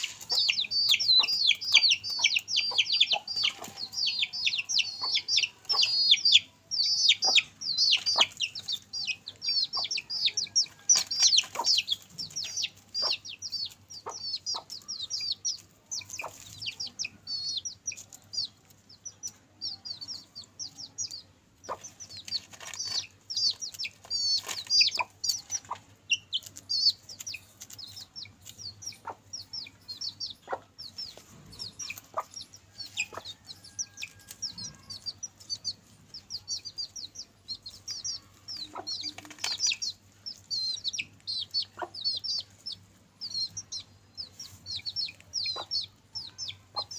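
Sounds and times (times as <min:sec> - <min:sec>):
chicks peeping: 0:00.0 - 0:46.9
hen clucking: 0:00.0 - 0:46.9.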